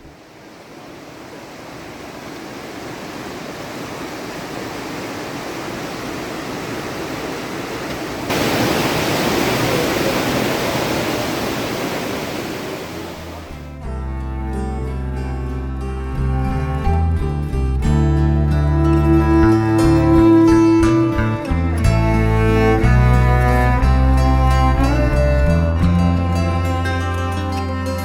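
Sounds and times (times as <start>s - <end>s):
rushing white water: 0.0s - 13.7s.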